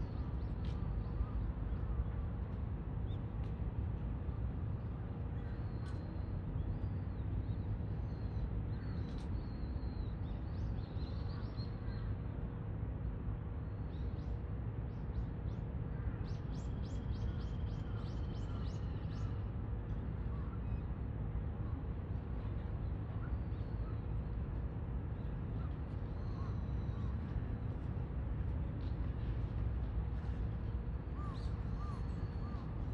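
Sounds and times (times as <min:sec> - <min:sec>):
steady low rumble: 0:17.2 - 0:32.9.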